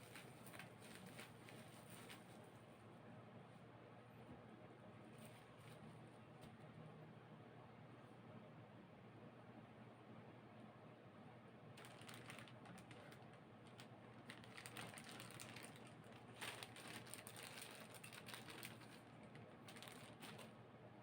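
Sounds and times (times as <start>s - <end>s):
packaging clicks and rustles: 0.0s - 2.4s, 11.8s - 20.6s.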